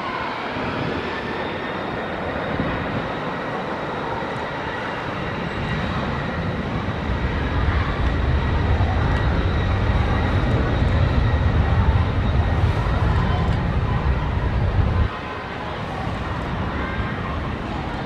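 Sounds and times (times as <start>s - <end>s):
jet engines running: 0.0s - 18.0s
deep rumble: 6.6s - 15.1s.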